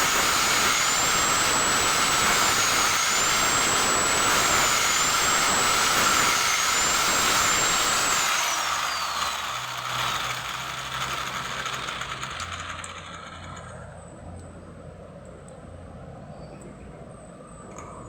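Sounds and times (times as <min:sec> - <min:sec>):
power tool motor whining: 0:00.0 - 0:14.0.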